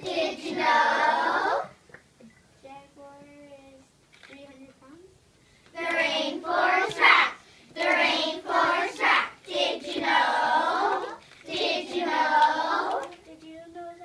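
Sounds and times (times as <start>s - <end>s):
children singing together: 0.0s - 1.8s, 5.8s - 13.2s.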